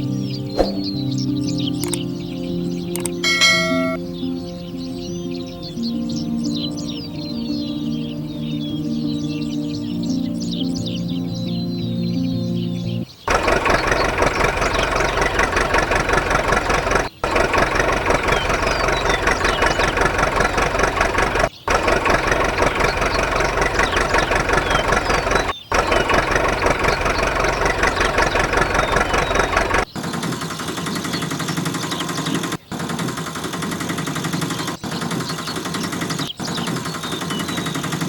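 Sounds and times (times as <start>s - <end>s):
small engine clattering: 3.0s - 4.0s, 13.3s - 38.0s.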